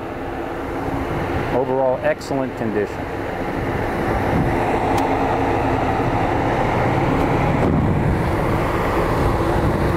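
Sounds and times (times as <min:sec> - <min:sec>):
car engine idling: 0:00.0 - 0:09.9
wind rumbling on microphone: 0:03.5 - 0:09.9.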